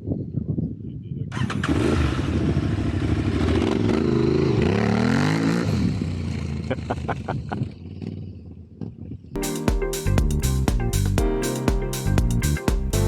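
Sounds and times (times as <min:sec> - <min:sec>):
motorcycle engine revving: 0:01.4 - 0:07.1.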